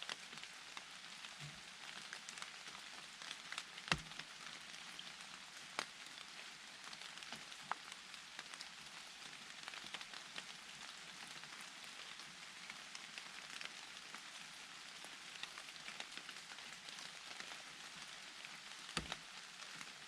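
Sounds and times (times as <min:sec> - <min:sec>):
light rain on leaves: 0:00.0 - 0:20.0
single raindrops striking: 0:03.9 - 0:04.2, 0:19.0 - 0:19.3.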